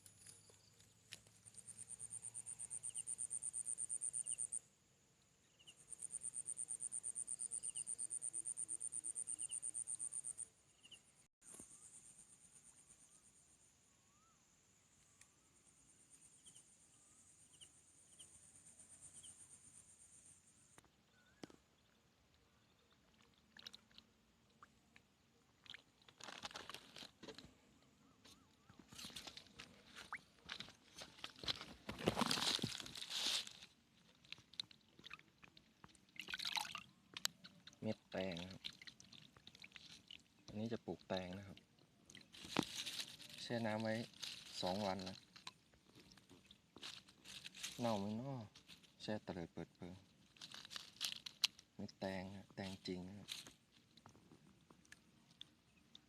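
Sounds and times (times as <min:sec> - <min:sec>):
rustling and crunching: 0:25.8 - 0:27.7, 0:28.3 - 0:37.8, 0:38.5 - 0:40.6, 0:42.0 - 0:49.0, 0:50.0 - 0:51.7, 0:53.2 - 0:55.5.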